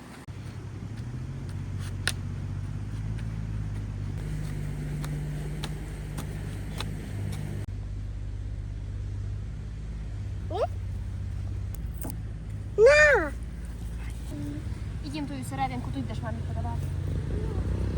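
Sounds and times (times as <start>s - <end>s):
excavator engine running: 0.0s - 7.7s.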